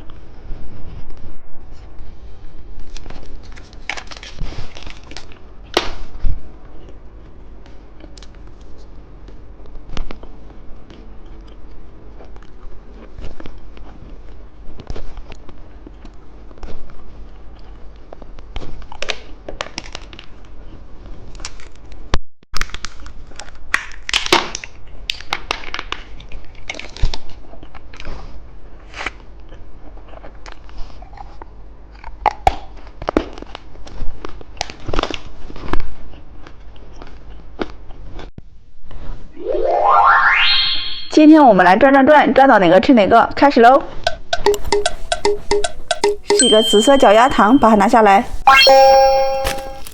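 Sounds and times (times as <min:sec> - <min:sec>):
candy crunching and chewing: 0:22.6 - 0:28.2.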